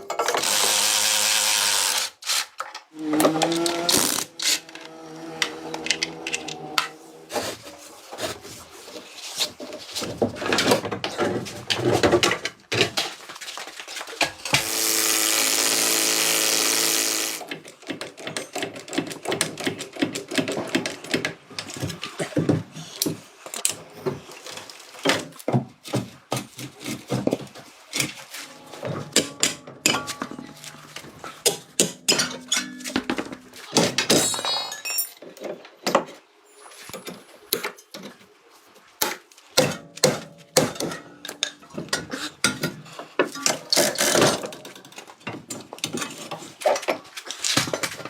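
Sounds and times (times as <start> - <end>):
power tool running: 0.2 - 2.2, 14.5 - 17.5
clicks and knocks: 28.0 - 34.8.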